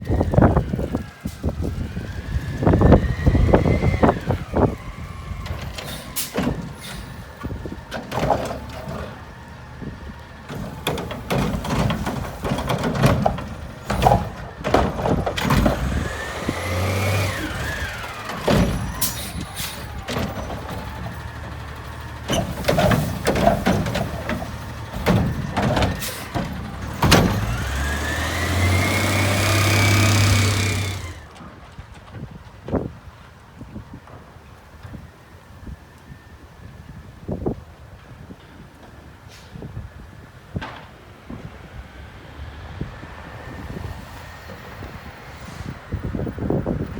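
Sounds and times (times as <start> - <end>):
garbage truck engine revving: 0.0 - 32.0
plastic carts banging: 10.5 - 33.0.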